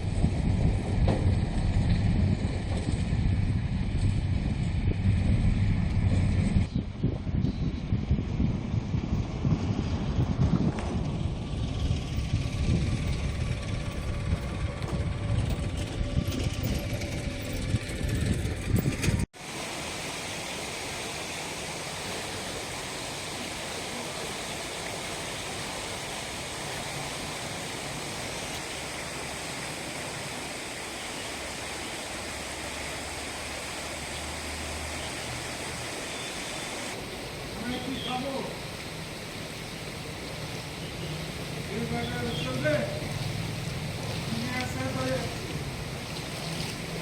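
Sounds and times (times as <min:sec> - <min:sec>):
wind buffeting microphone: 0:00.0 - 0:19.3
rush of flowing floodwater: 0:19.4 - 0:47.0.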